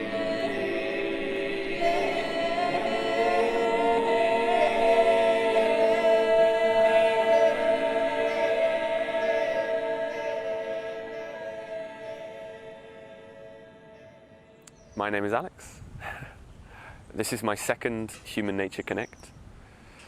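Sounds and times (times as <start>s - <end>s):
choir singing a cappella: 0.0s - 14.6s.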